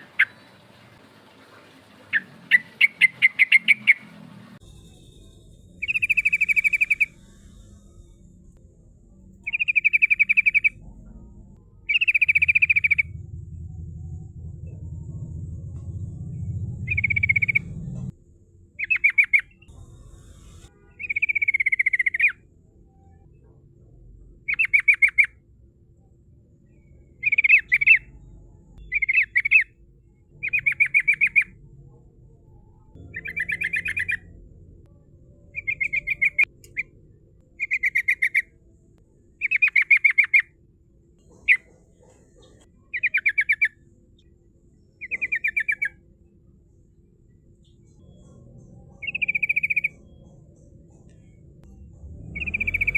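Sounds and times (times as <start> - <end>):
bulbul singing trilled phrases: 5.8 - 7.2, 9.5 - 10.8, 11.9 - 13.3, 16.6 - 17.9, 48.9 - 50.2.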